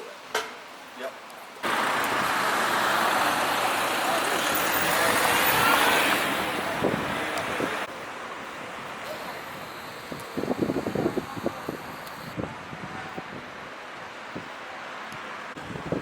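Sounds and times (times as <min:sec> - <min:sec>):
boat rushing over water: 0:01.6 - 0:09.8.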